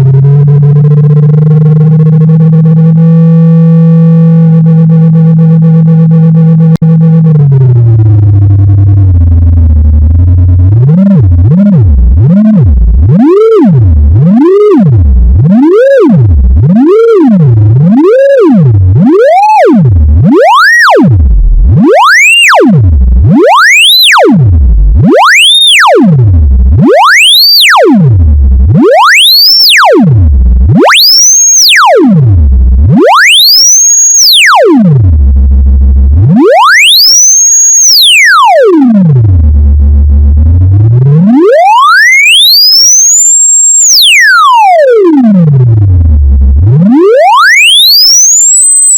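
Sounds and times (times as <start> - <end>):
electronic tone pitch sweeps: 0.0 - 48.9.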